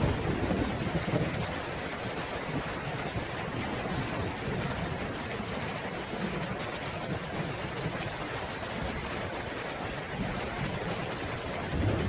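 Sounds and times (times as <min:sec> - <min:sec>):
thunder rumbling: 0:00.0 - 0:01.6, 0:10.1 - 0:12.0
rain falling: 0:00.0 - 0:12.0.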